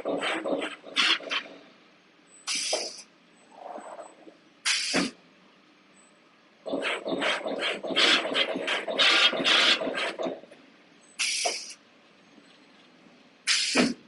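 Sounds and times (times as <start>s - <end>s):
short air hisses: 2.5s - 3.1s, 4.6s - 5.2s, 11.2s - 11.8s, 13.5s - 14.0s.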